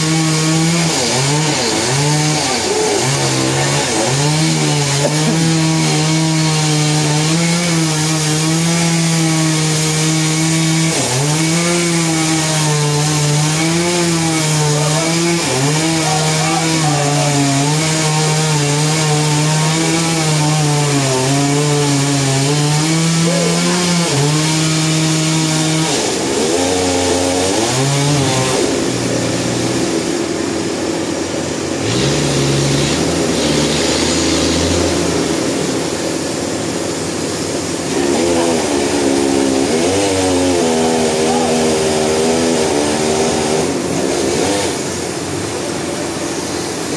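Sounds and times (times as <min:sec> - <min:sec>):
rough low engine: 0:00.0 - 0:08.7, 0:25.8 - 0:46.9
chainsaw cutting log: 0:00.0 - 0:46.9.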